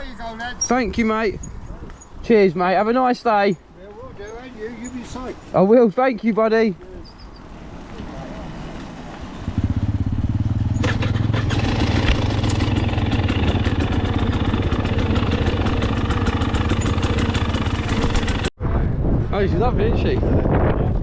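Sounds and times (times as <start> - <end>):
dirt bike engine pulsing: 7.3 - 18.5.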